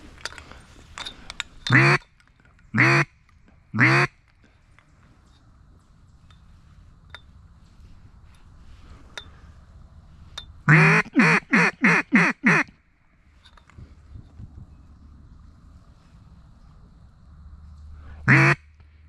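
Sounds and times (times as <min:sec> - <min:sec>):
duck call quacks: 0:01.7 - 0:02.0, 0:02.8 - 0:03.1, 0:03.8 - 0:04.2, 0:10.7 - 0:12.7, 0:18.3 - 0:18.7.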